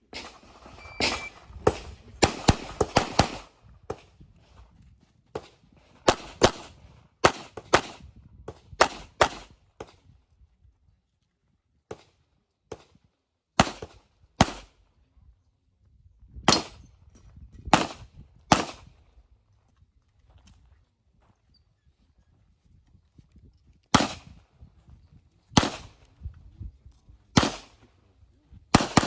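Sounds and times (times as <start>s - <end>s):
pistol shots: 0.1s - 3.5s, 6.1s - 8.0s, 8.8s - 9.5s, 13.6s - 14.7s, 17.7s - 18.8s, 23.9s - 24.3s, 25.6s - 25.9s, 27.4s - 27.8s, 28.7s - 29.0s.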